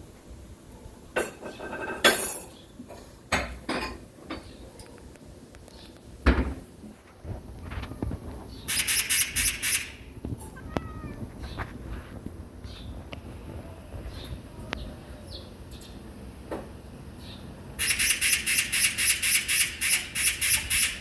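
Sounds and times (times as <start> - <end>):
cat chattering with clicks and squeaks: 7.7 - 11.8, 17.8 - 21.0.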